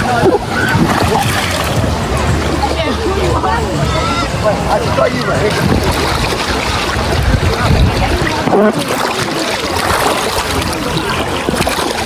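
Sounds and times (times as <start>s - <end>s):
steady low rumble: 0.0s - 8.6s
hubbub of voices: 0.0s - 12.0s
water sloshing and splashing: 0.0s - 12.0s.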